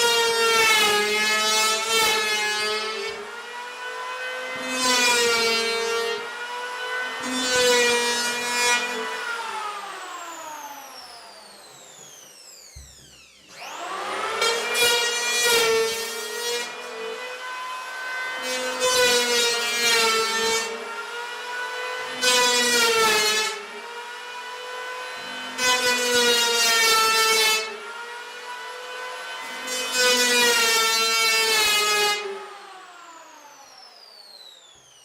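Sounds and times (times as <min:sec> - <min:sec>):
electric planer motor whining: 0:00.0 - 0:35.0.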